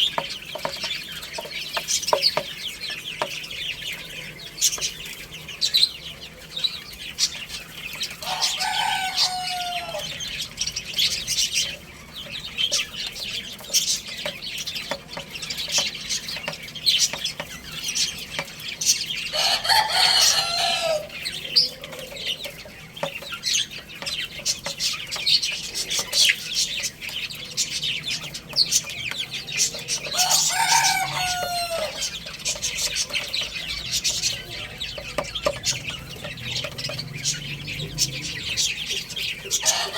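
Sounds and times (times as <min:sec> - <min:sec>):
chicks cheeping: 0:00.0 - 0:39.9
rooster crowing: 0:08.2 - 0:10.2, 0:19.3 - 0:21.2, 0:30.1 - 0:32.2, 0:39.6 - 0:39.9.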